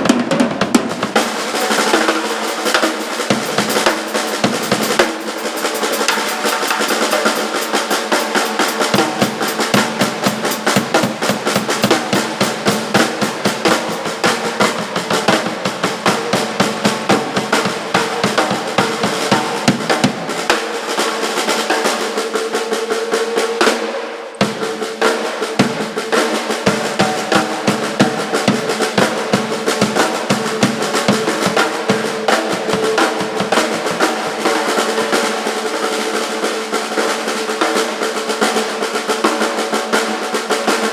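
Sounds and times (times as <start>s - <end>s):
rapid snare and cymbal strokes: 0.0s - 40.9s
rock band playing: 24.4s - 37.6s.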